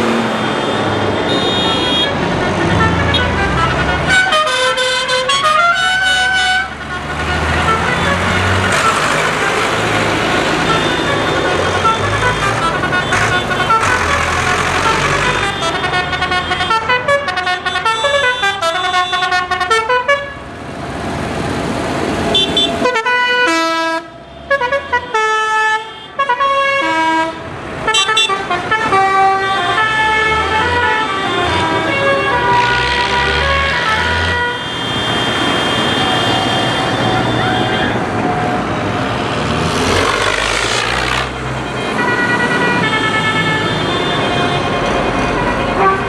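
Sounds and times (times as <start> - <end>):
tractor engines running: 0.0 - 19.3, 27.4 - 46.0
horn playing a tune: 1.4 - 9.1.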